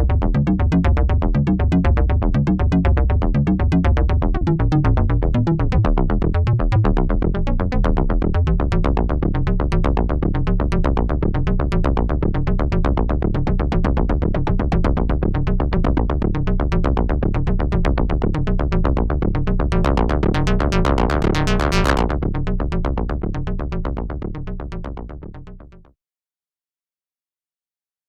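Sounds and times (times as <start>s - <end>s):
deep synth bass tone: 0.0s - 25.6s
synthesizer percussion pattern: 19.7s - 22.2s.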